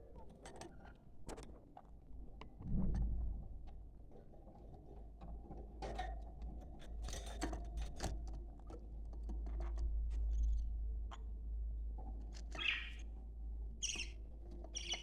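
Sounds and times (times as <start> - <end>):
low hum: 2.6 - 3.9
budgerigars chattering: 12.6 - 13.0, 13.8 - 14.2, 14.8 - 15.0.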